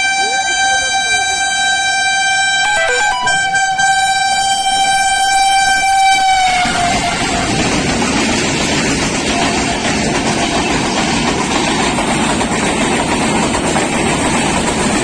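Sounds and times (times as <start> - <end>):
train horn blast: 0.0 - 7.9
train passing at high speed: 2.1 - 15.0.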